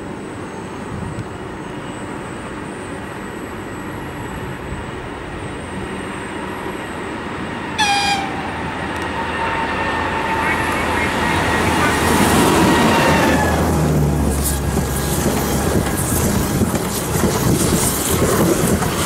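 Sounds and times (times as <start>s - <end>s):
train rumble: 3.4s - 19.0s
high-pitched locomotive horn toot: 7.8s - 13.8s.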